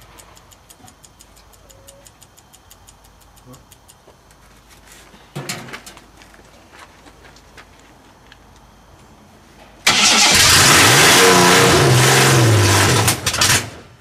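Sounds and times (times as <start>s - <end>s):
car engine starting and revving: 9.8s - 13.8s.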